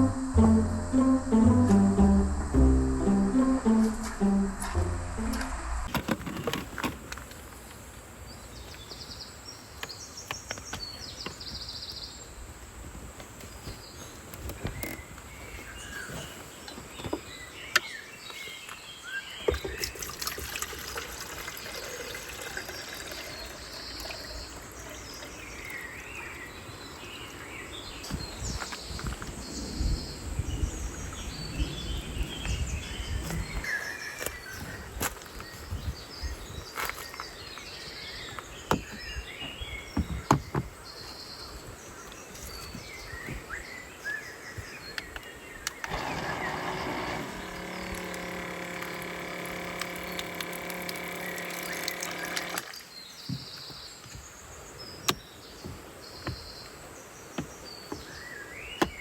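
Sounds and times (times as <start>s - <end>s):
low rumble: 0.0s - 5.9s.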